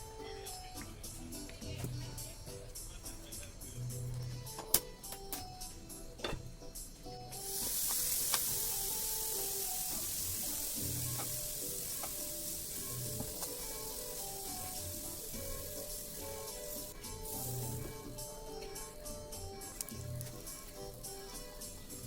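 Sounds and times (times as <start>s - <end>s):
light background music: 0.0s - 22.0s
batter sizzling on griddle: 7.4s - 22.0s.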